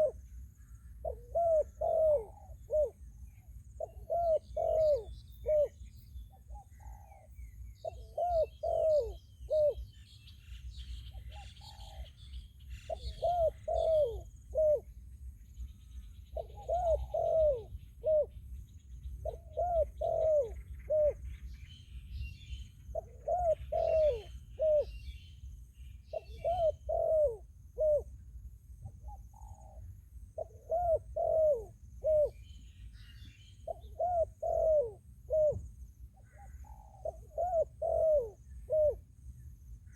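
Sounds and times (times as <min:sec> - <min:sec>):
doves cooing: 0:00.0 - 0:00.2, 0:00.9 - 0:03.1, 0:03.8 - 0:05.8, 0:06.5 - 0:09.9, 0:11.2 - 0:12.2, 0:12.8 - 0:15.0, 0:16.3 - 0:18.4, 0:19.2 - 0:21.5, 0:22.9 - 0:24.9, 0:26.1 - 0:28.1, 0:29.0 - 0:32.4, 0:33.6 - 0:39.0
small birds chirping: 0:00.0 - 0:28.0.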